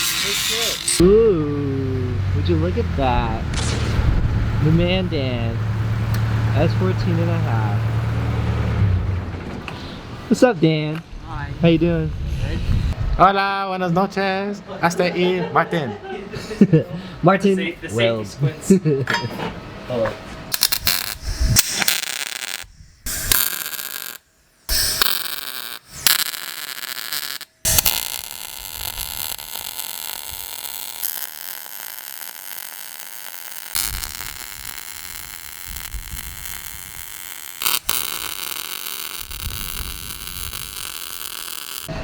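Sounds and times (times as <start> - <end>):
arc welder welding: 0.0 - 1.0, 20.5 - 42.0.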